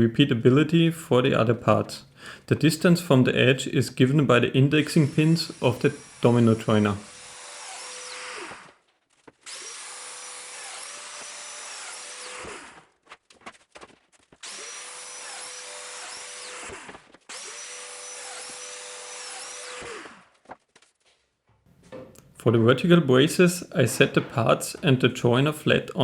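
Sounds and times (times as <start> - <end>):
joiner motor cutting plywood: 4.0 - 20.6.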